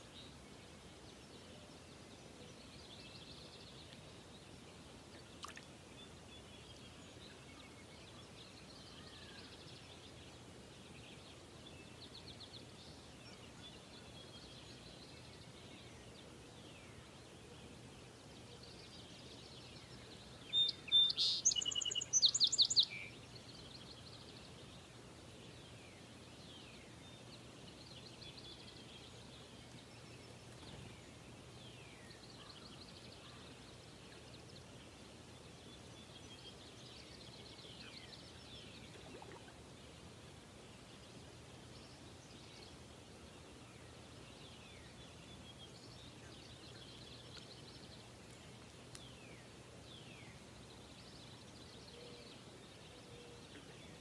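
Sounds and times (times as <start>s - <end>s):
outdoor hiss: 0.0s - 52.9s
songbirds chirping faintly: 0.0s - 54.0s
close bird trilling song: 20.5s - 23.1s.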